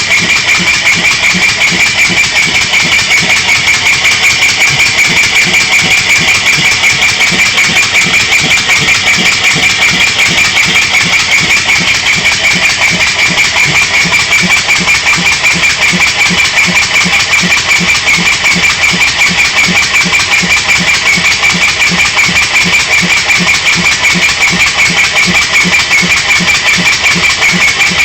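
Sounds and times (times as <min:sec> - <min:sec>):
engine exhaust puffs: 0:00.0 - 0:28.0.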